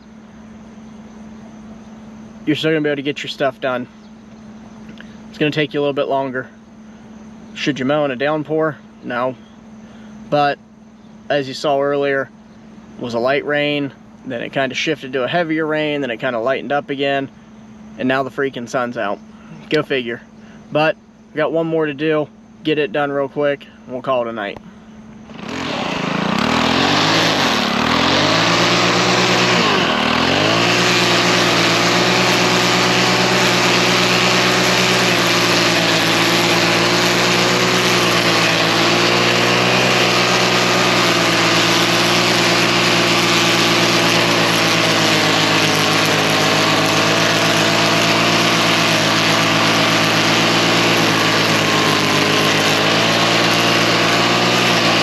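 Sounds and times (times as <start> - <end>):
lawn mower engine: 11.3 - 55.0.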